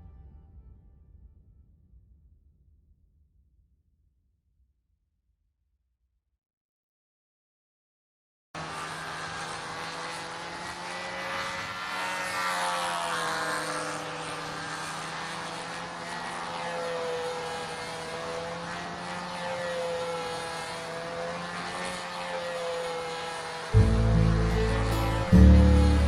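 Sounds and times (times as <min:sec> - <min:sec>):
model airplane engine drone: 0:08.6 - 0:26.0.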